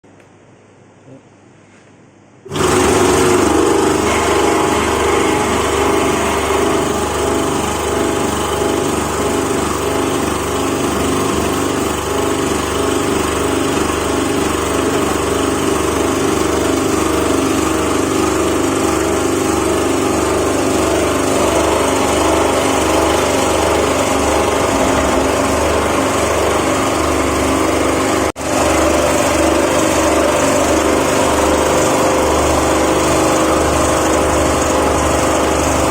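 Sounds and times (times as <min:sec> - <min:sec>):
vibrating sieve machine humming: 0:02.4 - 0:35.9.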